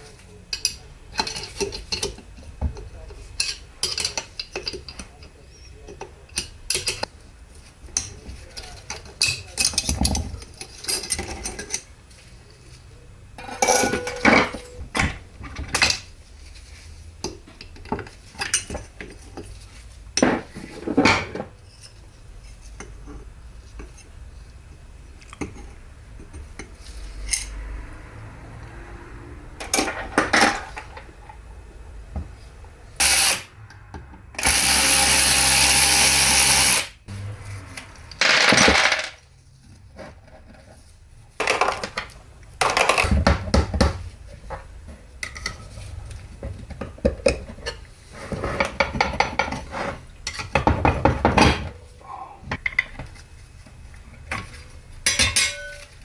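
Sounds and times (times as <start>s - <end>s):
metal parts clinking and clanking: 13.4s - 16.0s, 38.1s - 39.2s, 55.1s - 56.0s.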